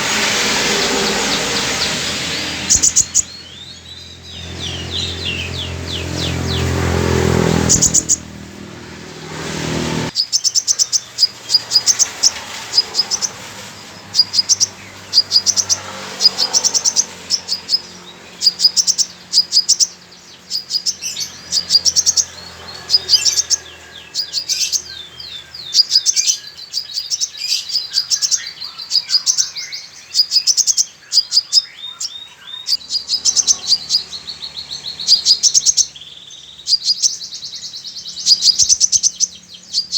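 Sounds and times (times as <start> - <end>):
noisy rush with low hum: 0.0 - 25.8
sunbird singing chirps and trills: 0.0 - 39.9.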